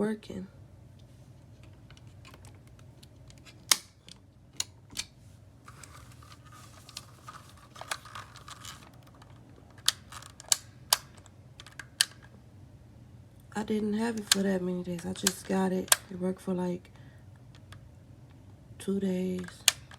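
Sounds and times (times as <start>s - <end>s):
low steady hum: 0.0s - 19.9s
rustling: 5.2s - 12.3s.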